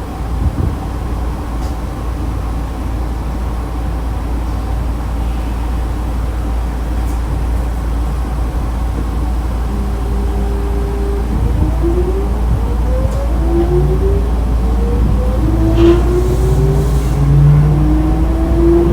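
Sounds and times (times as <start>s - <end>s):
train wheels rumbling on rails: 0.0s - 18.9s
faint high running tones: 9.2s - 17.6s.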